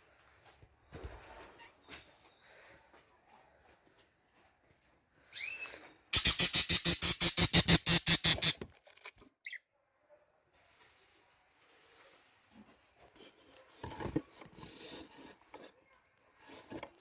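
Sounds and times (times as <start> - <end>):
bird chirp: 5.3 - 8.6, 9.4 - 9.7.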